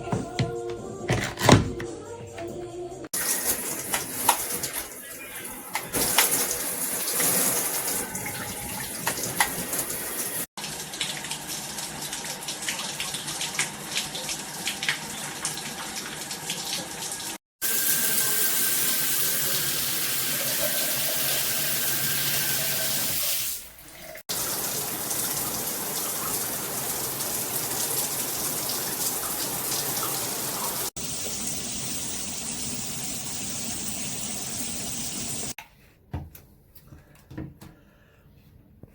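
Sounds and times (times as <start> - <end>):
shower head spraying water: 3.2 - 5.0, 5.7 - 10.5, 24.3 - 35.6.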